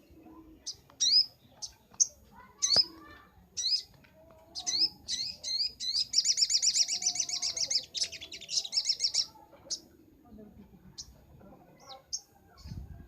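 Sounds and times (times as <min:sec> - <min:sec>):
bird chirps and fast trill: 0:03.6 - 0:03.9, 0:04.6 - 0:09.8.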